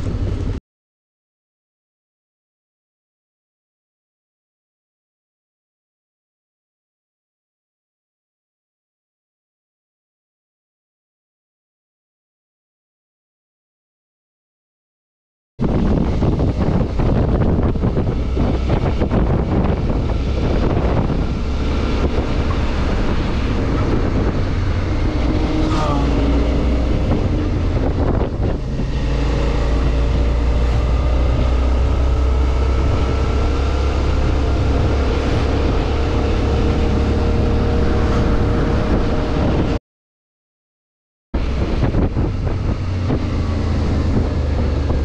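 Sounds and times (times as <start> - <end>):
wind rushing over microphone: 0.0 - 0.6, 15.6 - 39.8, 41.4 - 45.0
motorcycle engine running: 15.6 - 39.8.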